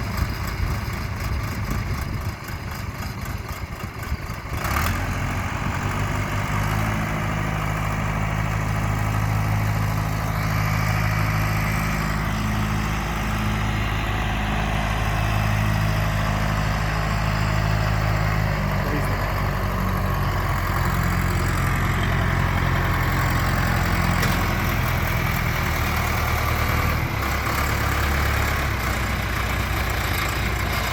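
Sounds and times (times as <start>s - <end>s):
tractor diesel engine running: 0.0s - 30.9s.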